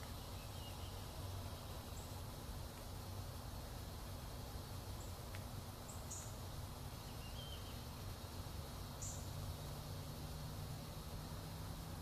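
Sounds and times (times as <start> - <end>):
faint click: 5.3 - 5.5.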